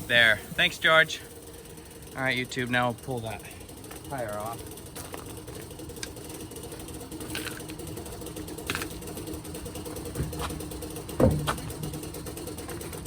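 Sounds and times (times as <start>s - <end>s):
machine humming: 0.0s - 13.0s
metallic clanks and knocks: 3.8s - 13.0s.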